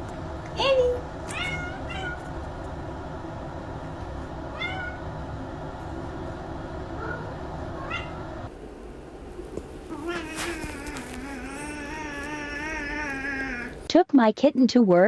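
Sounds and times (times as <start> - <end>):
low background hum: 0.0 - 15.0
cat meowing: 1.3 - 2.3, 4.6 - 5.0, 7.0 - 8.2, 9.9 - 13.8.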